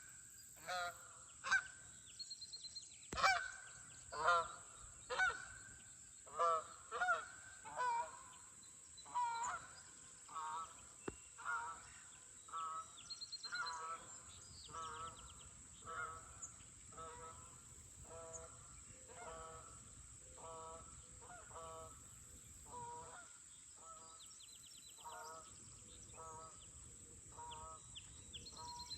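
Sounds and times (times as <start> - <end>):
flock of geese honking: 0.6 - 1.8, 3.2 - 5.6, 6.3 - 8.3, 9.0 - 19.8, 20.4 - 22.0, 22.7 - 24.1.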